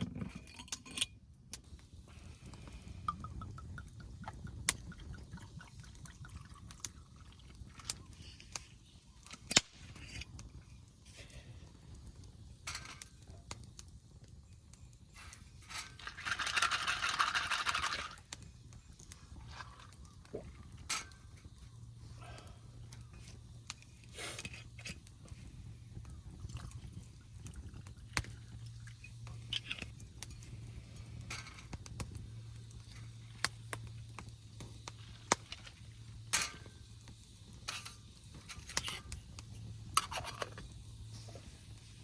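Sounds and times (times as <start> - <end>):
liquid pouring: 3.0 - 8.0.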